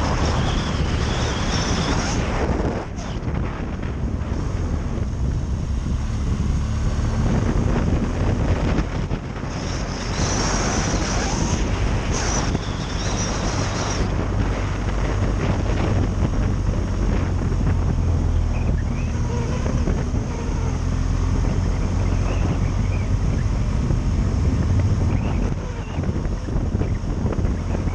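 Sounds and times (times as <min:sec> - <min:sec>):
wind buffeting microphone: 0:00.0 - 0:27.9.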